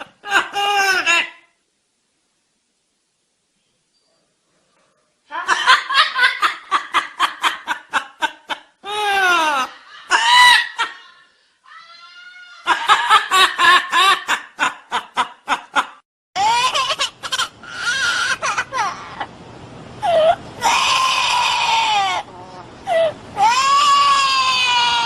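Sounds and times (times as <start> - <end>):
parrot imitating laughter: 0.0 - 1.5, 5.3 - 11.2, 12.6 - 19.3, 20.0 - 25.0.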